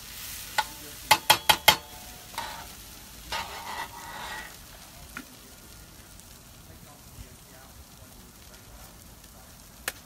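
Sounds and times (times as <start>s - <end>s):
hash browns sizzling: 0.0s - 10.0s
metal utensil striking cooking surface: 0.5s - 4.5s
utensil scraping and stirring: 0.5s - 4.7s.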